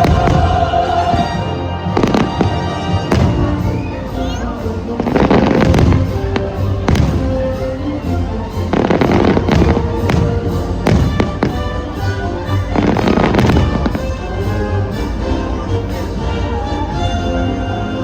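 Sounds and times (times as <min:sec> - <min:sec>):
fireworks bangs: 0:00.0 - 0:14.4
loud music: 0:00.0 - 0:18.0.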